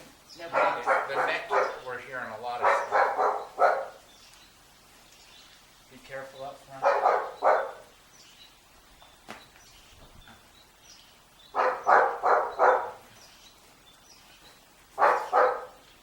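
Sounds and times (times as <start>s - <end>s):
dog barking: 0.4s - 1.9s, 2.5s - 4.0s, 6.8s - 7.9s, 11.5s - 13.1s, 15.0s - 15.8s.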